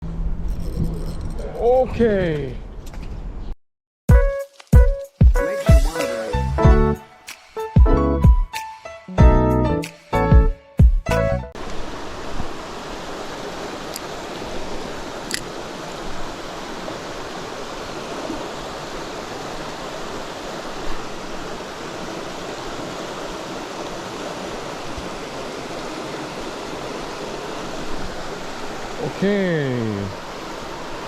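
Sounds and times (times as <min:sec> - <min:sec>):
stream rushing over rocks: 0:11.6 - 0:31.0.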